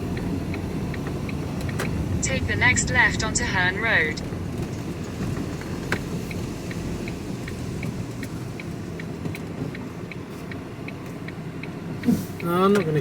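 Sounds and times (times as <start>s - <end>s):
engine and road rumble: 0.0s - 13.0s
turn indicator ticking: 0.0s - 13.0s.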